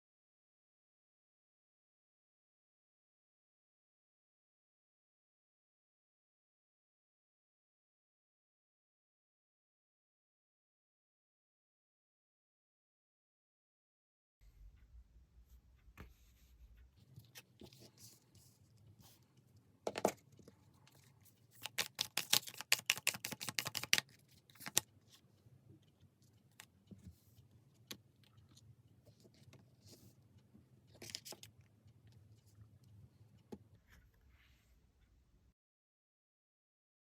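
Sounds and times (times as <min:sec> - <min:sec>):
cards rustling and slapping: 0:20.9 - 0:24.9.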